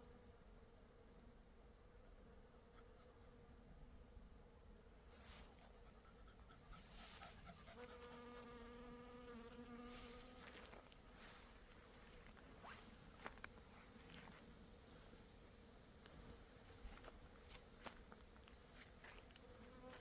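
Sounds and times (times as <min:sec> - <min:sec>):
bees buzzing: 0:07.5 - 0:13.2.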